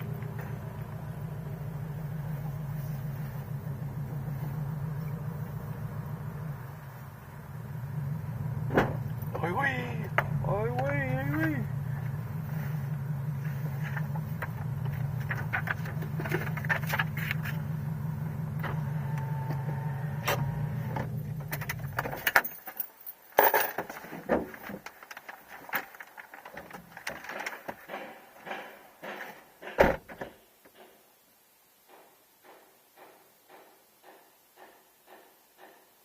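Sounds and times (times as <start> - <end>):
car engine running: 0.0 - 22.5.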